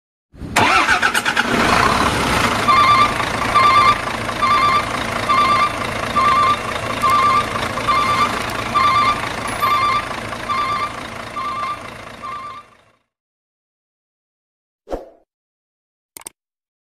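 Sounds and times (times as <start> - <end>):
truck engine revving: 0.6 - 12.7
reversing alarm beeping: 2.6 - 12.8.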